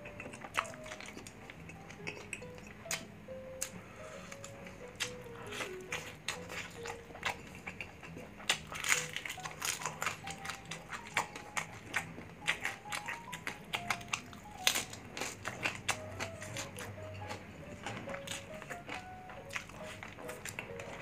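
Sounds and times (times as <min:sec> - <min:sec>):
crunchy chewing: 0:00.0 - 0:21.0.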